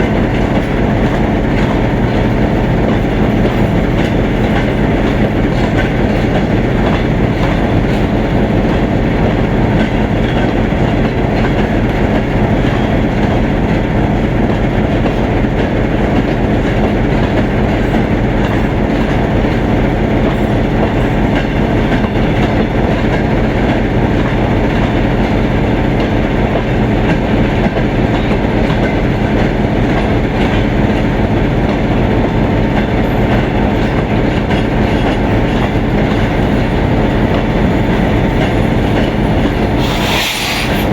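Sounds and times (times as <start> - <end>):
train cars rolling on rails: 0.0 - 40.9.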